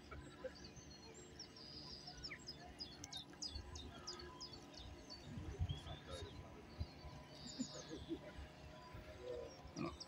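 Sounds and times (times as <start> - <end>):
wind rumble on microphone: 5.2 - 7.2.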